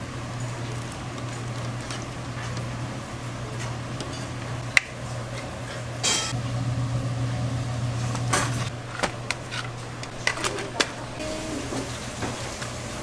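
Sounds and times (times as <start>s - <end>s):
steady low hum: 0.0s - 11.2s
dishes and utensils clattering: 5.3s - 6.4s.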